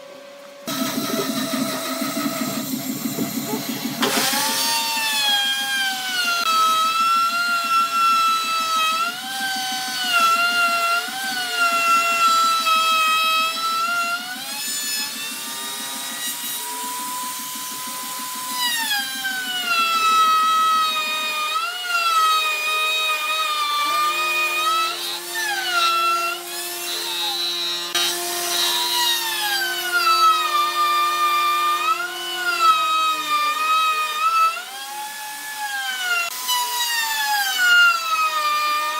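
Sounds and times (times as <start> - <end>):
power tool motor whine: 0.2 - 38.9
low hum: 0.7 - 4.9
fast low pulsing: 0.7 - 5.0.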